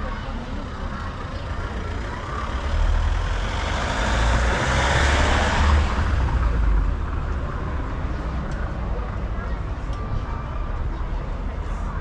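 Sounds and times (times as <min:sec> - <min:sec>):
large vehicle driving past: 0:01.4 - 0:07.9.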